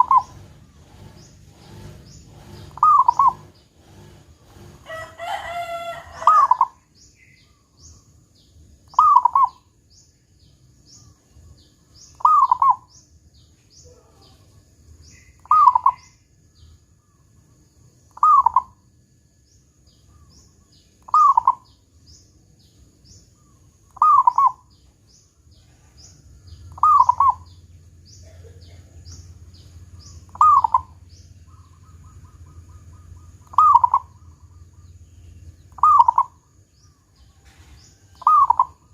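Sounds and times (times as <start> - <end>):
dove cooing: 0.0 - 6.8, 8.9 - 9.6, 11.5 - 12.9, 15.3 - 16.1, 18.2 - 18.8, 21.0 - 21.8, 23.4 - 24.8, 25.6 - 38.9
faint high-pitched chirping: 0.0 - 38.9.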